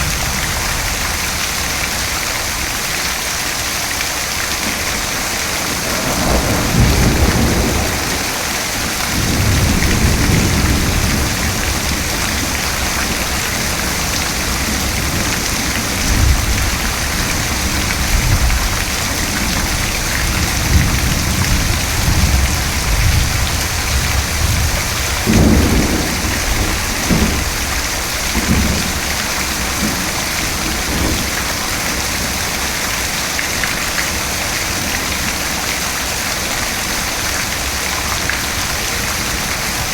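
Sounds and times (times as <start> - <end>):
thunder rumbling: 0.0 - 33.1
heavy rain: 0.0 - 39.9
sharp thunderclap: 4.6 - 31.6.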